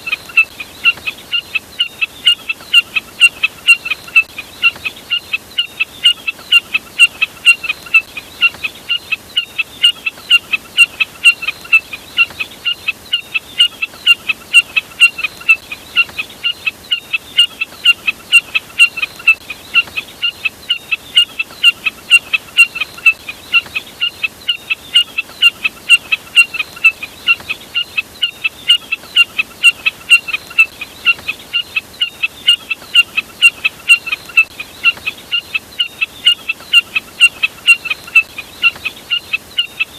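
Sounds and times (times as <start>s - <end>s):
snipe calling: 0.0s - 39.9s.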